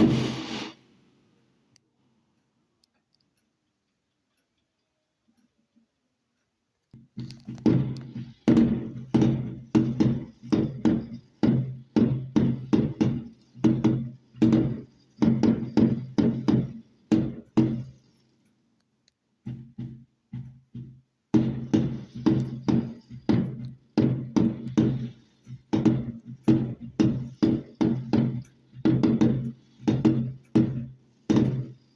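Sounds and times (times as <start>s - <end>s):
firework bangs: 0.0s - 0.8s.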